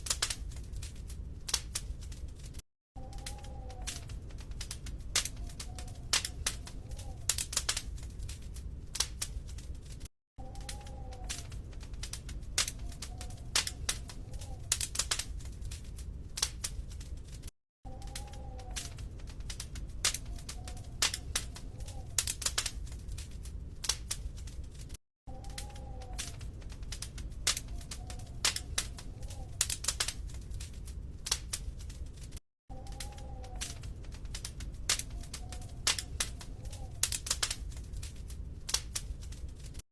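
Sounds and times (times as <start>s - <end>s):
low rumble of flames: 0.0s - 39.8s
wood fire crackling and popping: 0.0s - 39.8s
faint wavering whistles: 3.0s - 4.2s, 5.3s - 6.1s, 10.4s - 11.6s, 17.9s - 19.1s, 25.3s - 26.5s, 27.6s - 29.6s, 32.7s - 34.0s, 35.0s - 37.0s.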